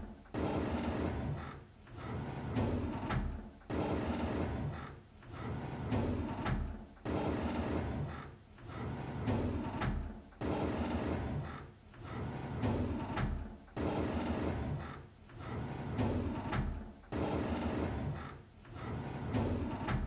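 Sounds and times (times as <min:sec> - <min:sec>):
drawer sliding open: 0:15.4 - 0:20.0.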